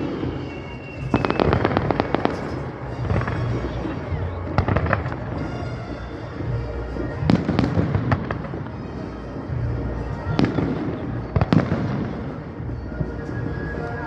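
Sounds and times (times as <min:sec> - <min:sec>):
fireworks bangs: 0:00.0 - 0:12.6
fireworks rumbling and crackling: 0:00.0 - 0:14.0.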